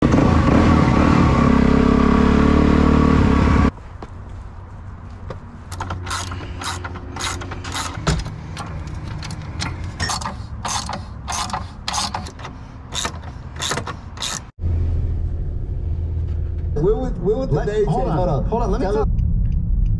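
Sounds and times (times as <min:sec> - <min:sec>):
clicks and rattles: 0:05.7 - 0:14.5
low hum: 0:14.6 - 0:19.9.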